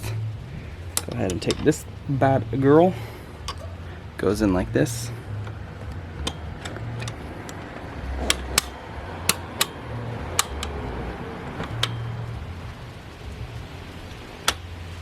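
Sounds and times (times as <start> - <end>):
low steady hum: 0.0 - 15.0
metal mechanism clicking: 3.4 - 3.7, 5.4 - 10.8, 11.6 - 12.2, 14.4 - 14.7.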